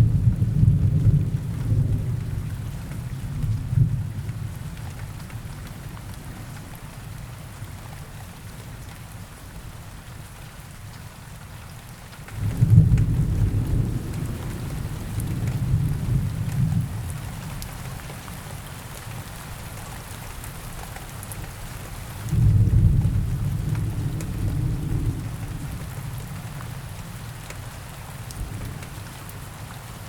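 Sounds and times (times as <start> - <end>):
steady rain falling: 0.0 - 30.0
rolling thunder: 12.4 - 17.1, 22.3 - 26.0.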